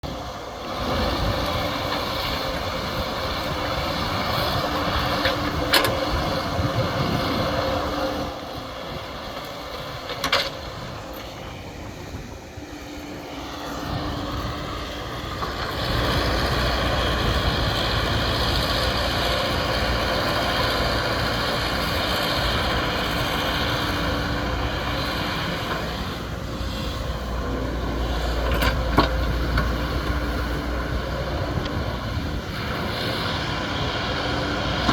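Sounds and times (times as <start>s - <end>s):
excavator diesel engine: 0.0s - 34.9s.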